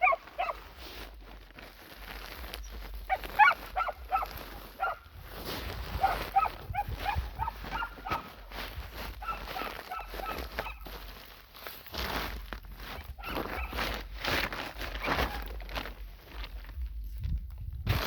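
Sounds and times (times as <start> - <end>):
dog whining and yipping: 0.0 - 0.6, 3.1 - 5.0, 6.0 - 8.2, 9.2 - 10.8, 13.2 - 13.8.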